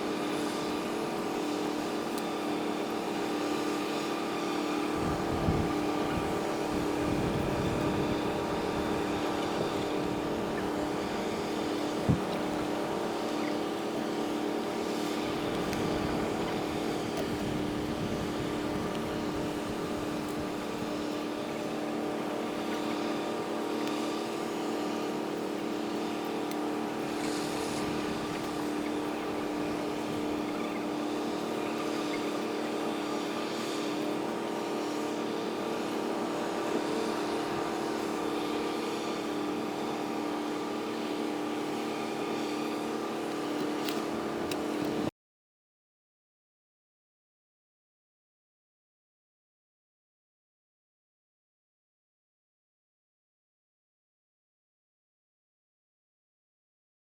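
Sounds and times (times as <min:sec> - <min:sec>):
mechanical drone: 0:00.1 - 0:45.1.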